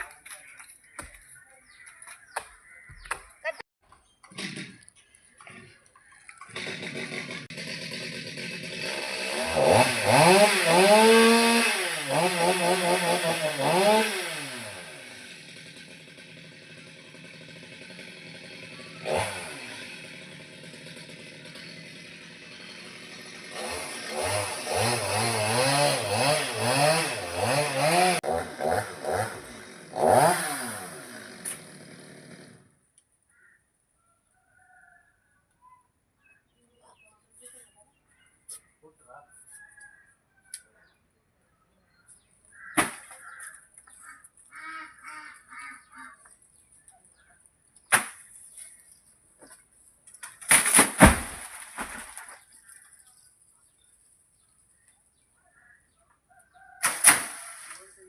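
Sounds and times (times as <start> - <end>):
chainsaw revving and idling: 4.3 - 5.1, 6.3 - 32.8.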